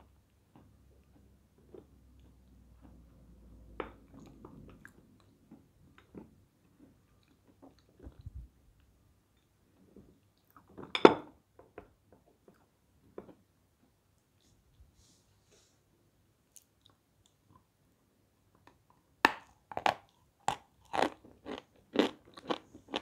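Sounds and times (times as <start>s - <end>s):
crunchy chewing: 19.7s - 23.0s.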